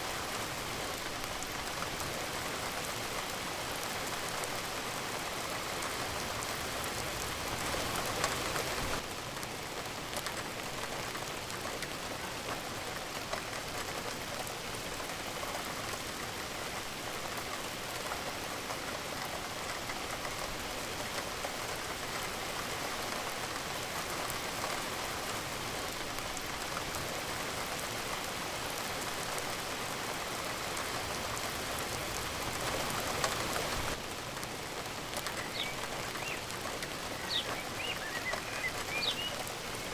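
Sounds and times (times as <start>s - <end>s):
steady rain hissing: 0.0s - 39.9s
raindrop ticks: 10.1s - 24.8s, 30.0s - 39.9s.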